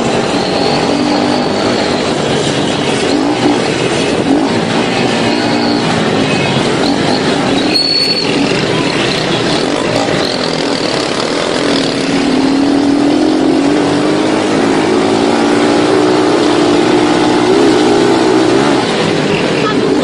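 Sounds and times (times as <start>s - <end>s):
vehicle engine running: 0.0s - 20.0s
wind and road noise: 0.0s - 20.0s.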